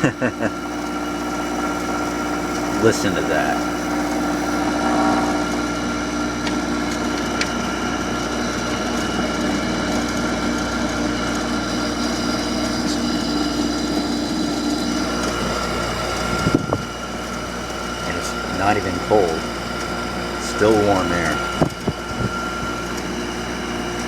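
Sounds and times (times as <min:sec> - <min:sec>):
whining tones: 0:00.0 - 0:09.3, 0:10.4 - 0:23.3
air conditioner humming: 0:00.0 - 0:24.0
fan rushing: 0:00.0 - 0:24.0.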